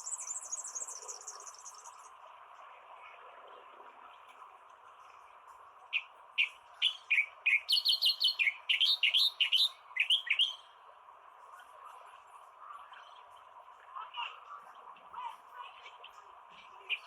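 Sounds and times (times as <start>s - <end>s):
bird singing: 0.0s - 2.1s, 5.9s - 10.6s, 16.0s - 17.0s
background hiss: 0.0s - 2.2s.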